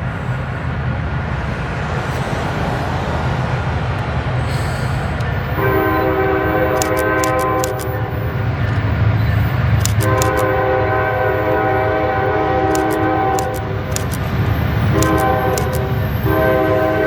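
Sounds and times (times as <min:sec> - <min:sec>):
diesel train rumbling by: 0:00.0 - 0:17.0
train air horn blast: 0:05.6 - 0:07.8, 0:09.9 - 0:13.8, 0:14.9 - 0:17.0.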